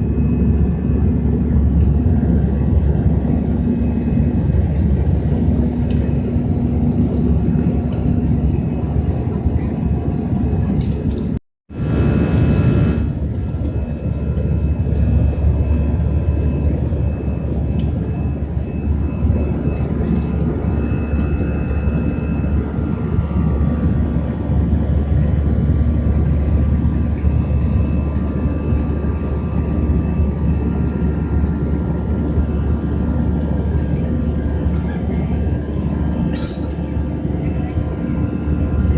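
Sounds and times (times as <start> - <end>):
jet engine cabin drone: 0.0 - 38.9.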